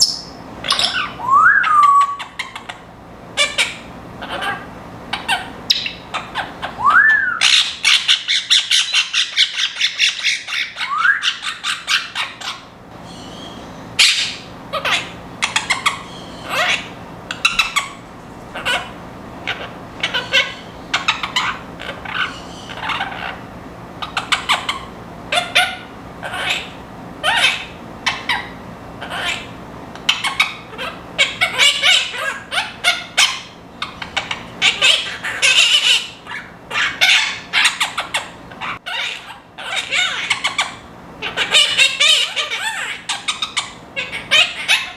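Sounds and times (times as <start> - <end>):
parrot rising whistles: 0.0 - 2.4, 6.6 - 7.7, 10.4 - 11.9
parrots chattering and squawking: 0.0 - 44.9.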